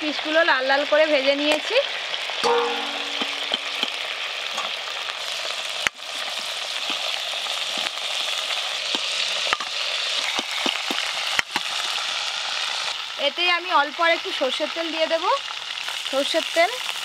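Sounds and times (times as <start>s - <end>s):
chicken sizzling in hot oil: 0.0s - 17.0s
metal spoon clinking: 2.4s - 3.9s.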